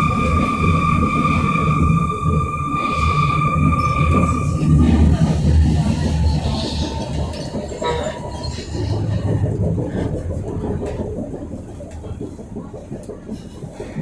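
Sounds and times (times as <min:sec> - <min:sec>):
metro train rumbling on track: 0:00.0 - 0:14.0.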